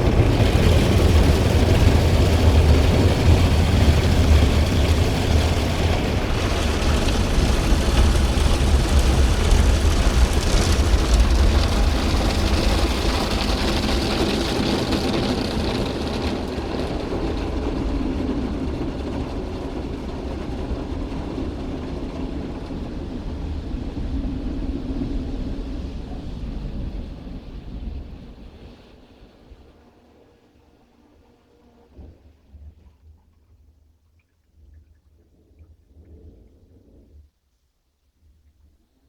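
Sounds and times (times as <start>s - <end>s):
deep rumble: 0.0s - 29.7s
car wash rushing: 0.0s - 31.7s.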